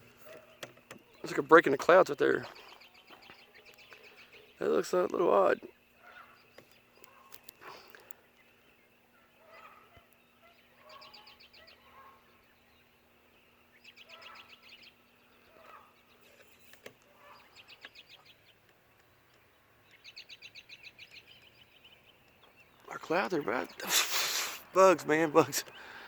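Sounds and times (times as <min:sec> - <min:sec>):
soft bird calls: 0:00.0 - 0:26.0
bird trilling: 0:13.7 - 0:16.0.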